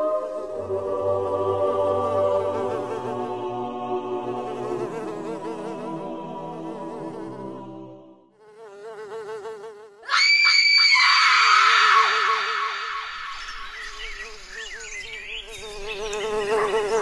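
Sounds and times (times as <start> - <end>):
choir-like chant: 0.0 - 8.3
housefly buzzing: 1.5 - 10.1, 12.0 - 17.0
loud shrill hissing: 10.1 - 13.8.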